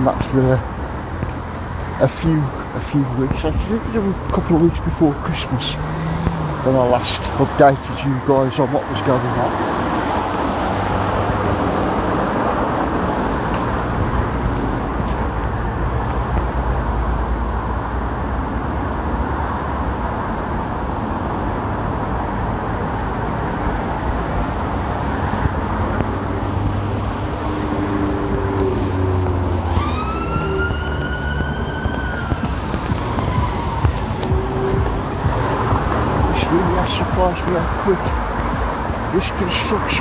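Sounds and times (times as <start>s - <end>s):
busy road traffic: 0.0s - 40.0s
siren wailing: 27.5s - 36.6s.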